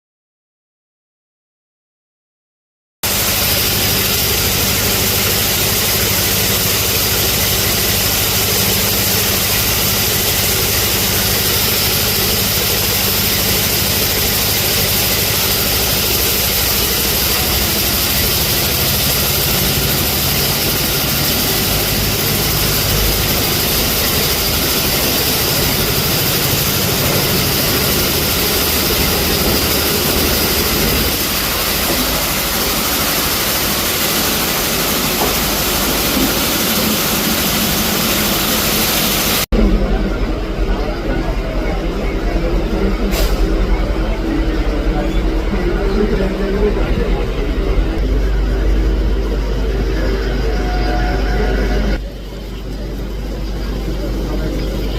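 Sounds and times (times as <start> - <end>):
train rumble and rushing hiss: 3.1 - 54.9
low hum: 3.6 - 54.9.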